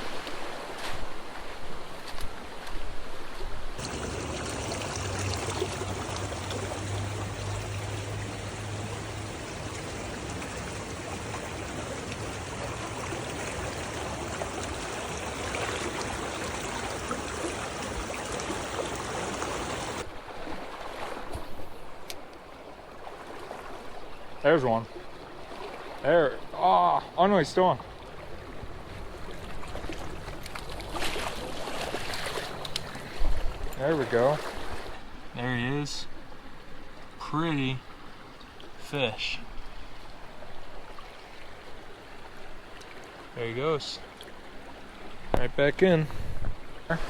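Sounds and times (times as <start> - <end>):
creek water over rocks: 0.0 - 47.0.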